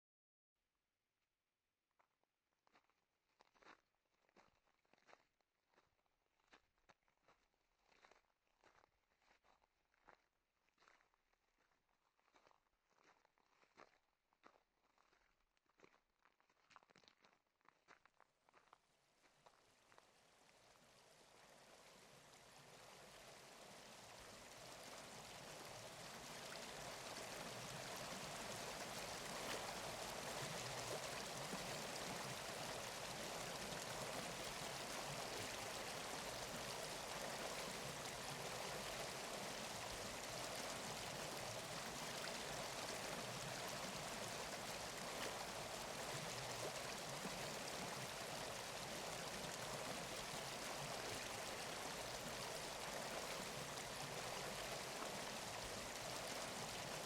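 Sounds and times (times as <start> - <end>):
running water rushing: 20.7 - 57.0.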